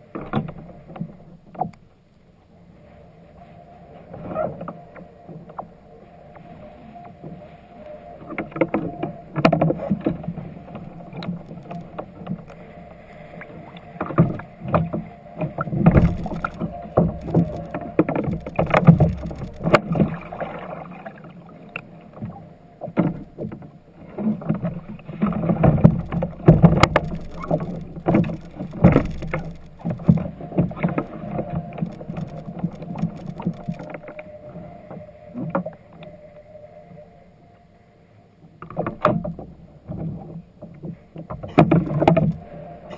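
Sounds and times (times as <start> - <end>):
water movement: 2.8 - 36.6.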